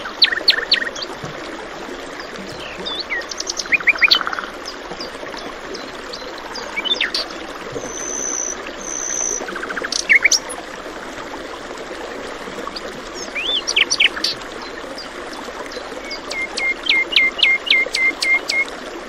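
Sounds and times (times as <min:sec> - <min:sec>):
stream water flowing: 0:00.0 - 0:19.0
songbirds chirping: 0:02.0 - 0:10.6.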